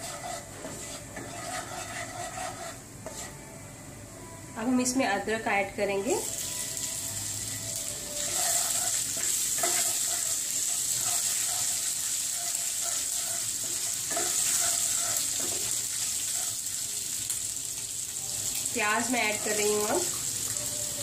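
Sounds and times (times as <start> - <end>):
spices sizzling in hot oil: 0.0 - 3.3, 6.0 - 21.0
wooden spatula scraping a pan: 0.0 - 3.4, 8.2 - 16.8.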